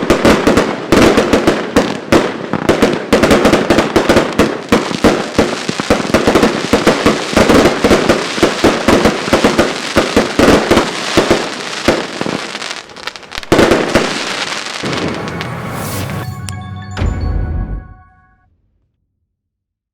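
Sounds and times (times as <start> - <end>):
firework crackling: 0.0 - 16.5
firework bangs: 0.0 - 17.3.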